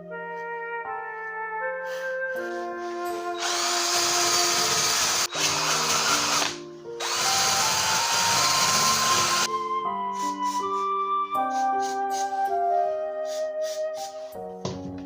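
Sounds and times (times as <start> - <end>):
background music: 0.0 - 15.0
power tool running: 3.4 - 9.5.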